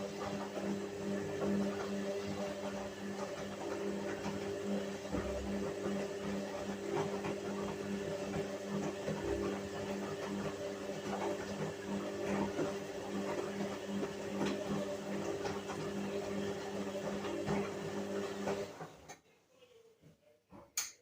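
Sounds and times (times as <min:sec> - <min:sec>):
washing machine running: 0:00.0 - 0:19.1.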